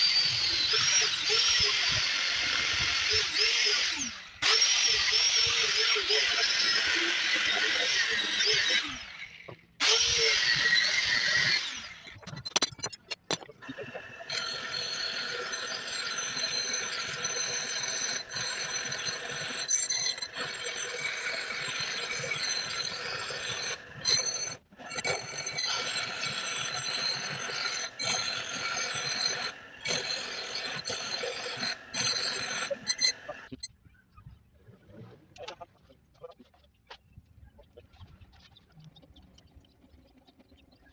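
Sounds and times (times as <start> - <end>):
power tool grinding steel: 0.0 - 12.6, 13.6 - 33.5
high whining tones: 13.8 - 33.6
loud squealing: 14.3 - 33.5.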